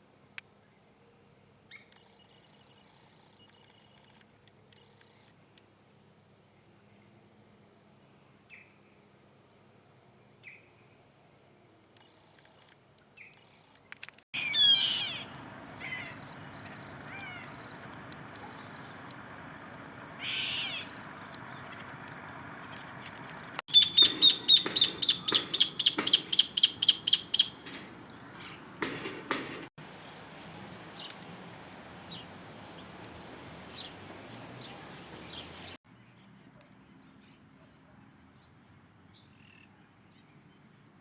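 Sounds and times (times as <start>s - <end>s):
bird calling high notes: 14.4s - 28.8s
steady outdoor hiss: 14.4s - 35.8s
faint bird chirps: 23.7s - 28.7s.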